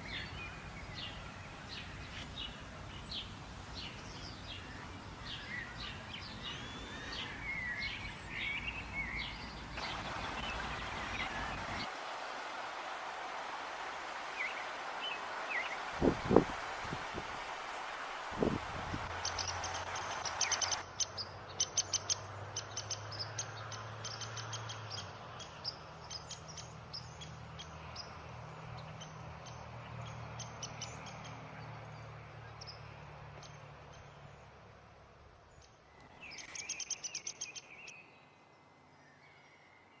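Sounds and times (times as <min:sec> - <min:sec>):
birds chipping and twittering: 0:00.0 - 0:11.9, 0:18.4 - 0:34.6, 0:35.5 - 0:40.0.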